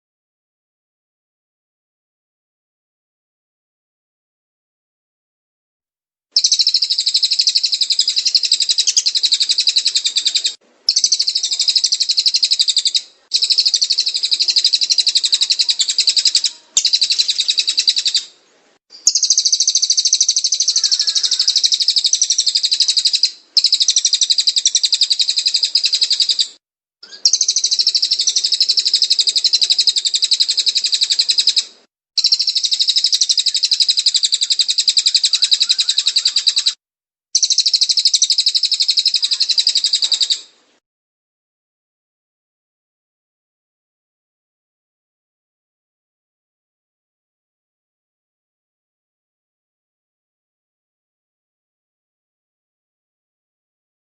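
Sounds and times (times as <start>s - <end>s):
bird rapid high chirping: 6.4s - 18.3s, 18.9s - 36.8s, 37.4s - 40.5s.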